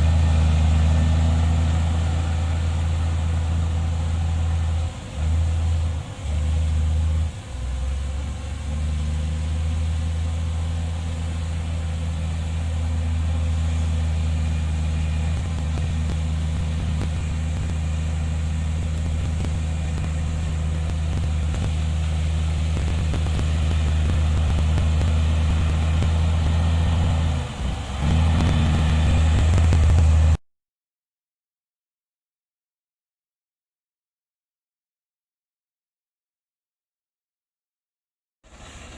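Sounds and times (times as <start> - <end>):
heavy diesel engine droning: 0.0 - 30.4, 38.4 - 38.9.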